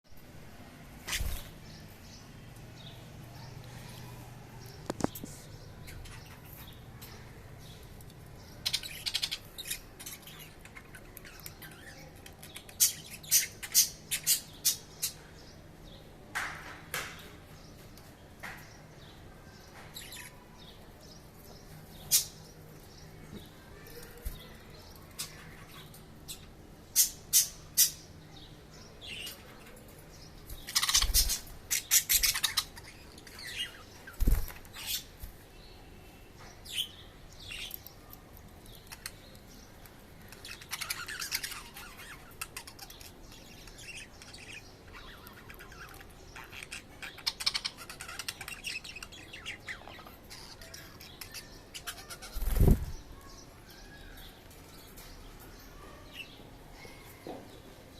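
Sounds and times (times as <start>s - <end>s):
budgerigars chirping and chattering: 1.0s - 4.0s, 4.6s - 15.7s, 19.7s - 35.2s, 36.6s - 56.4s.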